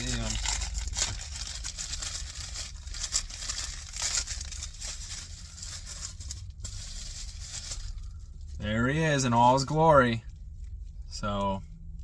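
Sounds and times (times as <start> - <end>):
packaging crinkling and tearing: 0.0 - 8.5.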